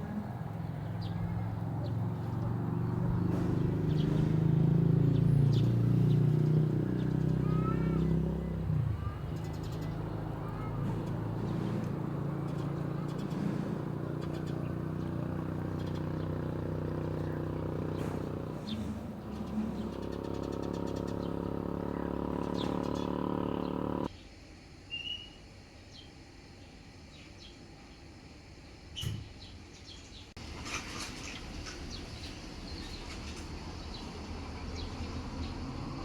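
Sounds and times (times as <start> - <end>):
bird chirp: 0.0 - 24.1
motor hum: 8.8 - 24.1.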